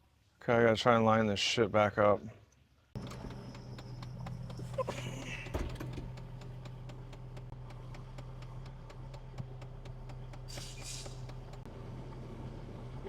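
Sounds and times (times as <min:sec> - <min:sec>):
light regular ticking: 0:03.0 - 0:11.7
diesel engine idling: 0:03.0 - 0:13.0.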